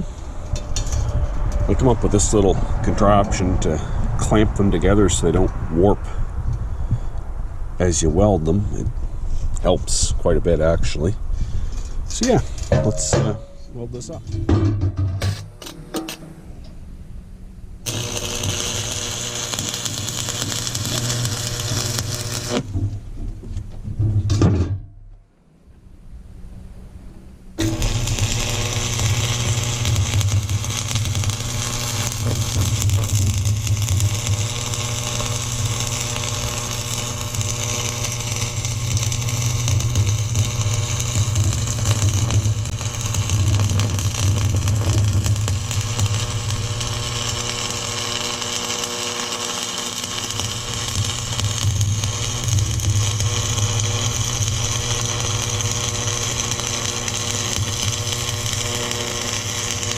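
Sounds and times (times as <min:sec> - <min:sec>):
welding arc crackle and hiss: 0:00.0 - 0:06.1, 0:17.8 - 0:22.8, 0:27.6 - 0:59.9
welder electrical hum: 0:00.0 - 0:07.0, 0:07.6 - 0:24.8, 0:26.4 - 0:59.9.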